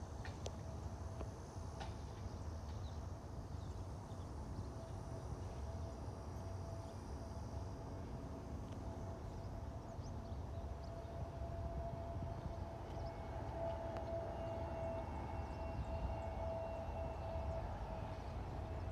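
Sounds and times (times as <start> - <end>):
high engine whine: 4.6 - 18.9
distant jet engine rumble: 7.7 - 18.9.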